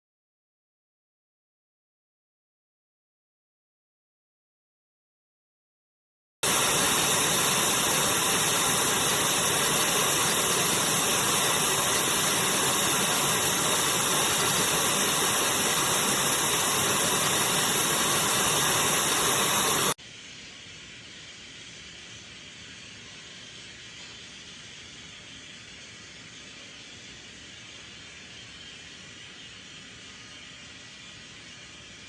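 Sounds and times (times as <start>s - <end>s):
vacuum cleaner running: 6.4s - 20.0s.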